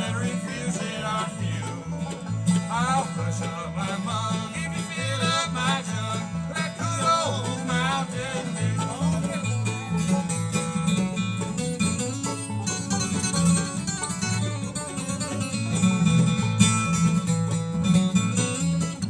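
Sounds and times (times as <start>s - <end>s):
banjo picking: 0.0s - 19.0s
guitar picking: 0.0s - 19.0s
walking bass line: 0.0s - 19.0s.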